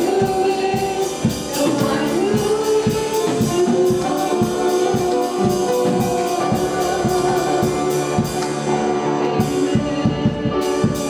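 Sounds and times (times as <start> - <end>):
drum kit cymbal strokes: 0.0 - 11.0
worship band playing: 0.0 - 11.0.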